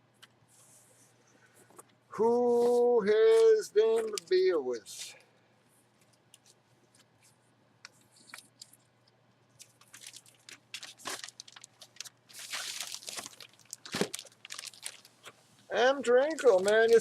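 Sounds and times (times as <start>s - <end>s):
packaging crinkling and rustling: 9.5s - 15.4s, 16.2s - 17.0s.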